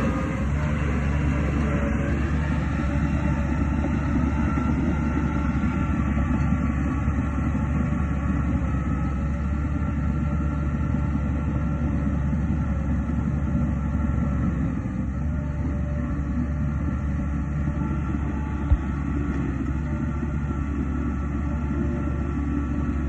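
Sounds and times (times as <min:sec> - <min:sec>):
bulldozer diesel engine drone: 0:00.0 - 0:23.0.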